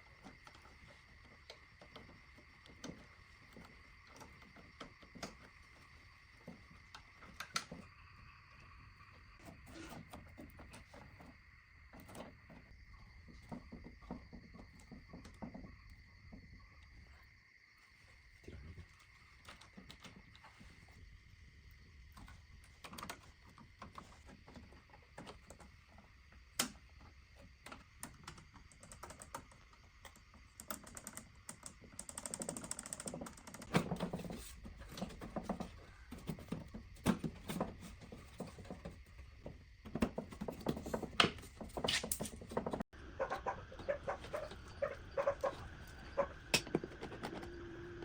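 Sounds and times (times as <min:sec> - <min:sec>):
small hard parts clicking: 0:22.1 - 0:38.8.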